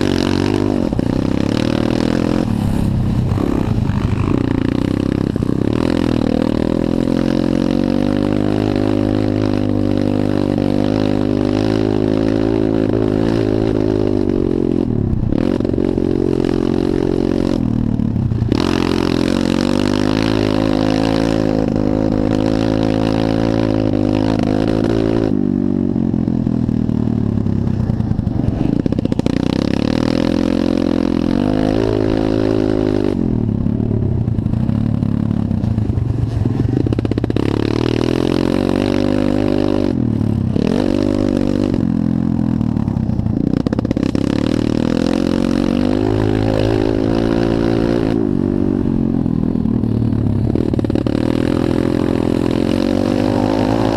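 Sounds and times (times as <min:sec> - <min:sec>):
pit bike engine revving: 0:00.0 - 0:33.6, 0:34.2 - 0:53.9.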